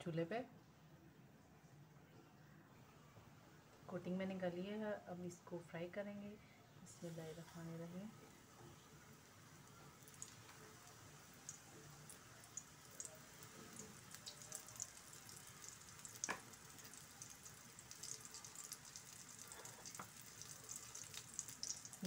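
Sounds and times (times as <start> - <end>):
food sizzling in oil: 8.2 - 22.0.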